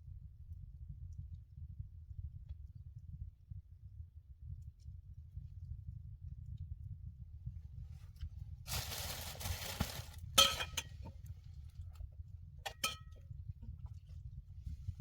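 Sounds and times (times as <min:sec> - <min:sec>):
steady low rumble: 0:00.0 - 0:15.0
cookware clinking: 0:10.4 - 0:10.9, 0:12.7 - 0:13.2.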